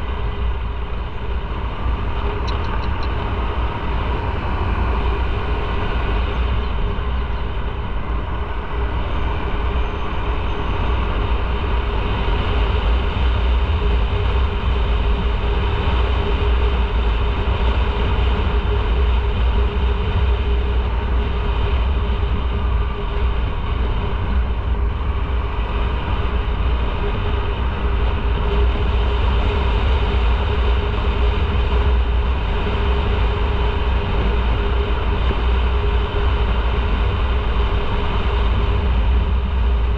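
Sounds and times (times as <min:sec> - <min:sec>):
motorcycle engine hum: 0:00.0 - 0:39.9
wind rumble on microphone: 0:00.0 - 0:39.9.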